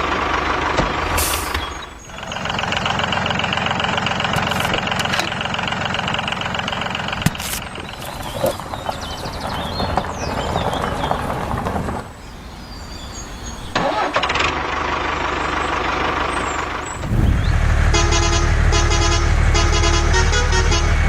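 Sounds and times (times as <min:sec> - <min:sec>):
low engine drone: 0:00.0 - 0:08.9, 0:13.2 - 0:21.0
vehicle engine running: 0:00.0 - 0:21.0
horn short blasts: 0:17.0 - 0:21.0.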